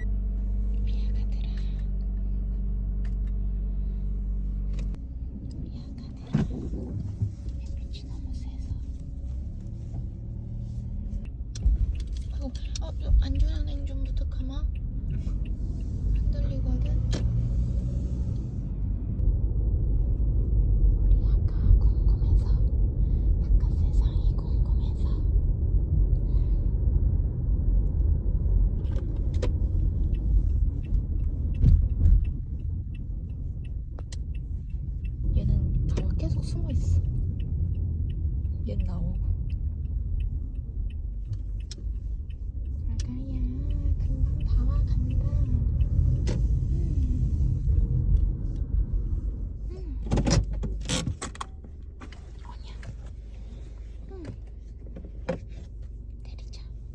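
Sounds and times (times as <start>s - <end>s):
car road noise rumble: 0.0s - 56.9s.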